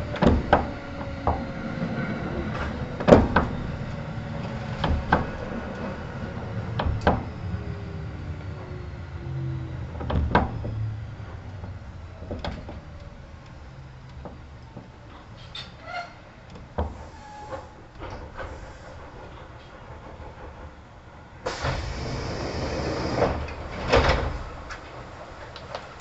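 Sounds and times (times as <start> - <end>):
wheels knocking over rail joints: 0.0 - 8.6
faint falling whine: 0.0 - 15.4
low train running rumble: 0.0 - 26.0.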